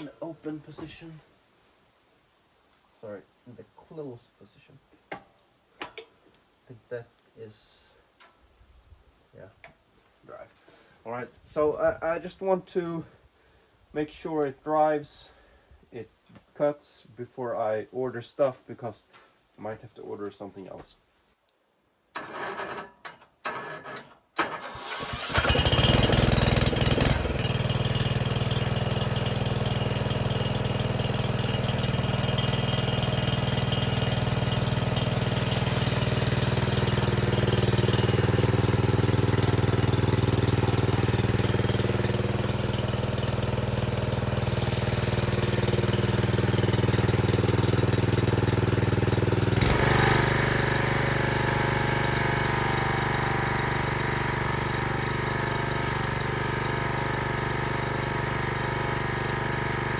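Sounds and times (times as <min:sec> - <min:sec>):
engine cranking: 0:22.2 - 0:52.4
mower engine running: 0:23.6 - 0:59.9.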